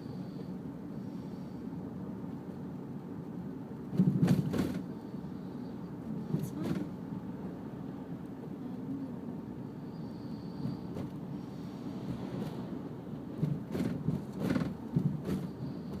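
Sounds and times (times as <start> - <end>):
car driving rumble: 2.1 - 16.0
knocks and bumps: 13.3 - 16.0.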